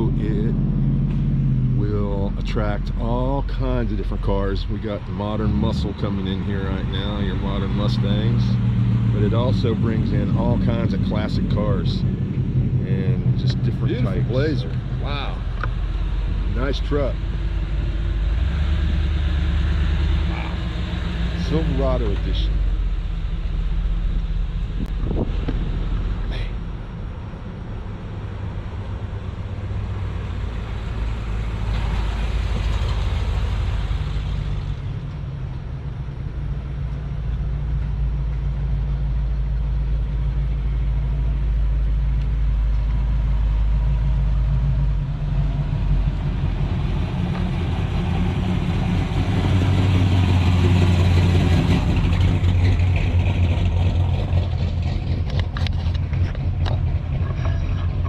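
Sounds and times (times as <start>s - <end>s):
cars and trucks driving past: 0.0s - 58.0s.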